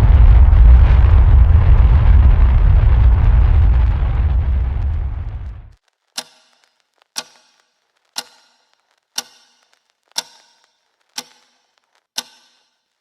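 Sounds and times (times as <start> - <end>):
sharp click with ringing: 6.2 - 12.8.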